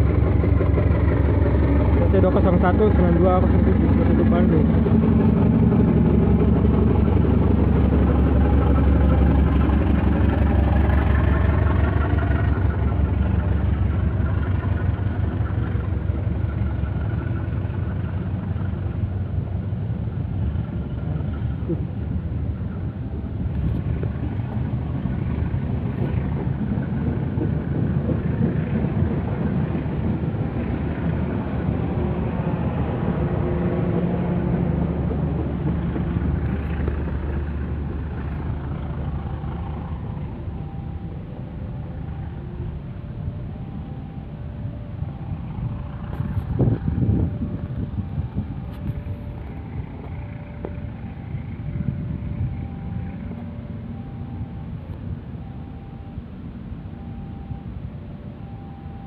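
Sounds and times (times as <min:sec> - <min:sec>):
locomotive engine droning: 0:00.0 - 0:59.0.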